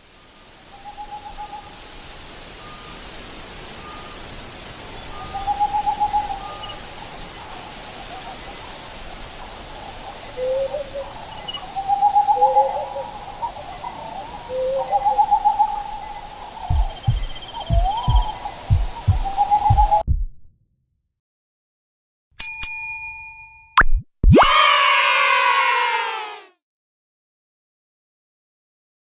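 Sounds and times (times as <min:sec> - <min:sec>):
owl hooting: 0:05.2 - 0:08.4, 0:10.0 - 0:20.0
deep heartbeat-like thumps: 0:16.7 - 0:20.6, 0:23.8 - 0:24.5.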